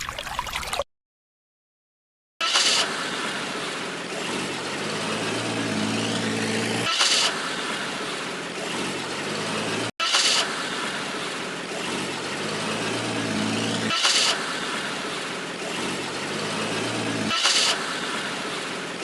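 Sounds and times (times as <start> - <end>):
short sharp hiss: 2.4 - 3.4, 10.0 - 10.7
road noise: 2.4 - 19.0
vehicle engine running: 2.5 - 19.0.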